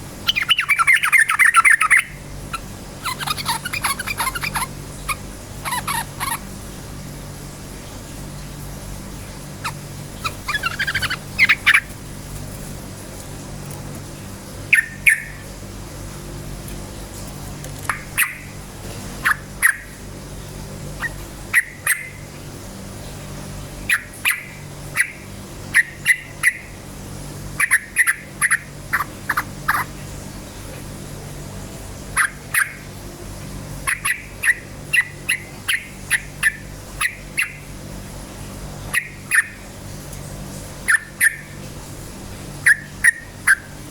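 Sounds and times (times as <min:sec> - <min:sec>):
steady low hum: 0:00.0 - 0:43.9
bird chirping: 0:00.2 - 0:06.4, 0:09.6 - 0:12.0, 0:14.7 - 0:15.5, 0:17.9 - 0:18.6, 0:21.0 - 0:22.2, 0:23.9 - 0:26.8, 0:27.6 - 0:29.9, 0:33.8 - 0:37.7, 0:38.9 - 0:39.6, 0:40.9 - 0:41.6, 0:42.6 - 0:43.8.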